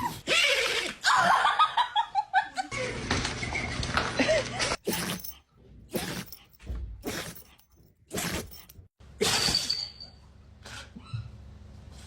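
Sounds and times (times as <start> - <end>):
dog sneezing: 5.9 - 6.4, 8.1 - 9.7.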